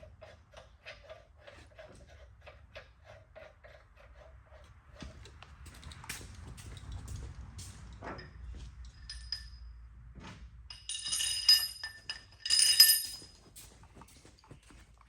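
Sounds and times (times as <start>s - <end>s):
metal parts clinking and rattling: 8.2s - 9.6s, 10.7s - 13.4s.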